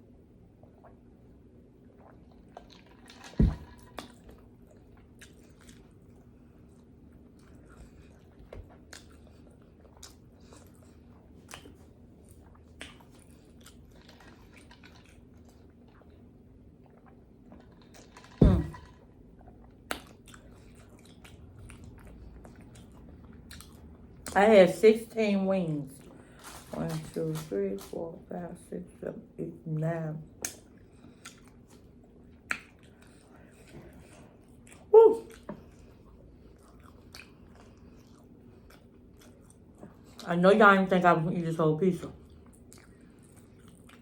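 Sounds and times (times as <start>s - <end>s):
chewing and biting food: 2.0s - 18.4s, 19.4s - 24.4s, 30.4s - 40.3s, 42.2s - 44.0s.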